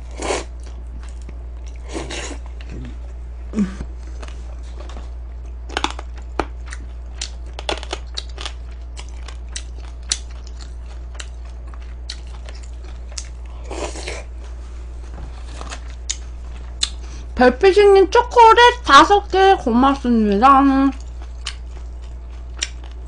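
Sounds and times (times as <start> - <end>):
steady low hum: 0.0 - 23.0
person chewing crispy chicken: 0.1 - 2.9, 4.0 - 14.3, 15.4 - 17.2, 20.9 - 23.0.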